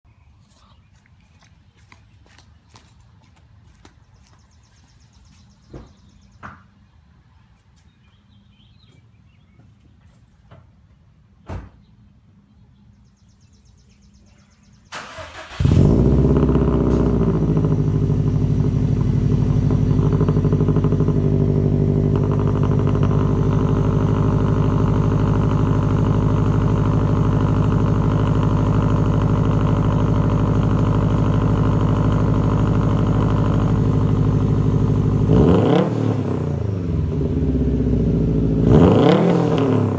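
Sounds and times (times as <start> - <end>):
car engine cranking: 14.9 - 18.3
car engine idling loudly: 15.6 - 35.4.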